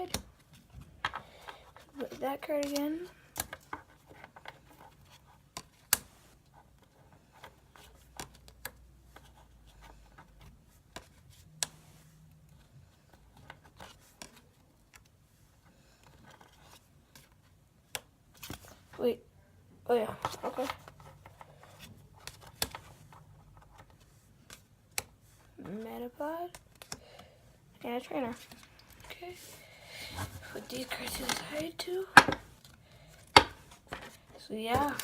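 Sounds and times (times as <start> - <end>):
cards scraping and rubbing: 20.0 - 25.6.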